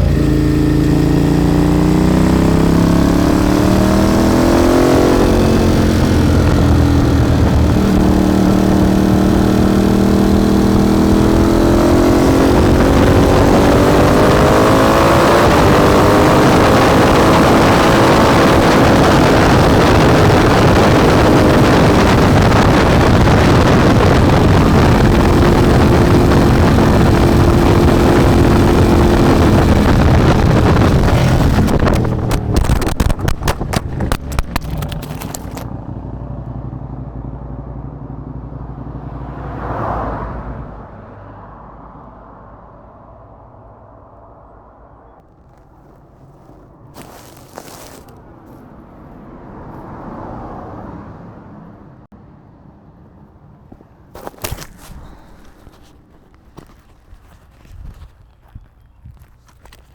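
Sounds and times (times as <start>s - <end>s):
motorcycle engine accelerating: 0.0s - 40.2s, 45.1s - 50.8s, 53.6s - 59.9s
wind rush: 3.3s - 35.6s.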